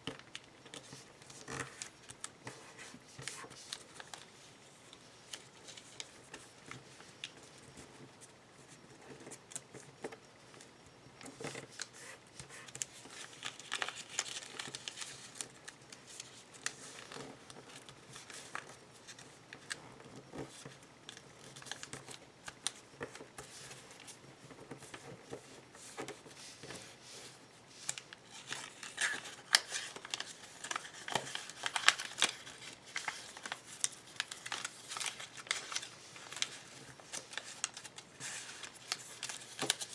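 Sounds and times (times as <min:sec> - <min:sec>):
paper being folded and creased: 0:11.6 - 0:19.8, 0:20.5 - 0:39.9.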